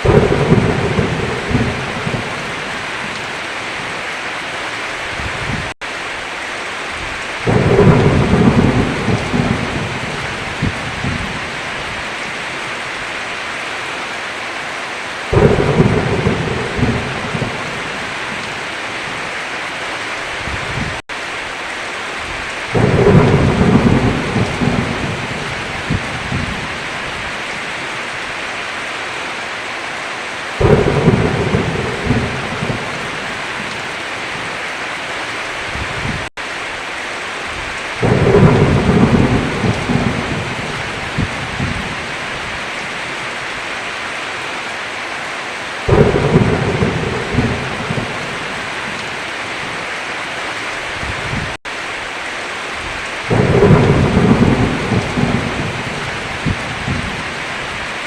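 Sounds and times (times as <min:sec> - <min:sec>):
thunder rolling: 0:00.0 - 0:03.2, 0:07.4 - 0:11.6, 0:15.3 - 0:18.6, 0:22.7 - 0:26.8, 0:30.6 - 0:33.8, 0:37.6 - 0:42.1, 0:45.9 - 0:49.1, 0:53.3 - 0:57.3
heavy rain: 0:00.0 - 0:58.0.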